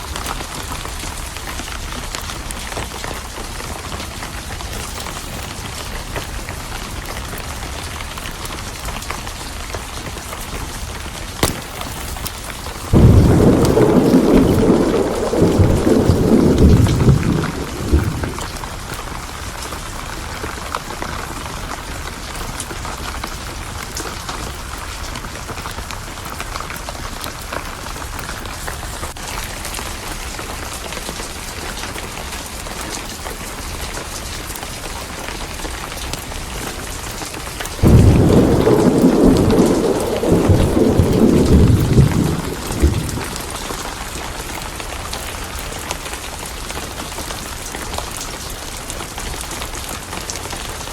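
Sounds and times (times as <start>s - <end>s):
heavy rain: 0.0s - 50.9s
loud thunder crack: 11.4s - 18.9s, 37.8s - 44.0s
thunder rumbling: 11.4s - 19.4s, 37.8s - 44.9s.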